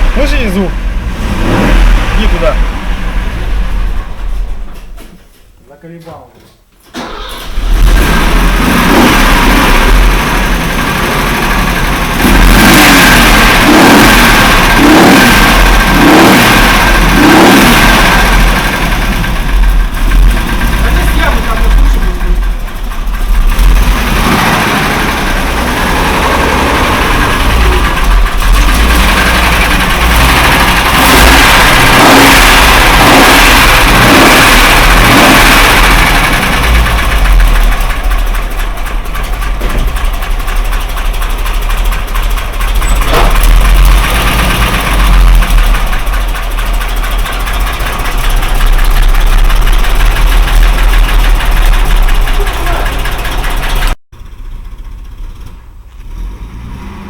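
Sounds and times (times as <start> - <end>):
car engine revving: 0.0 - 4.8, 7.0 - 57.0
rumbling bearing knock: 36.7 - 54.0.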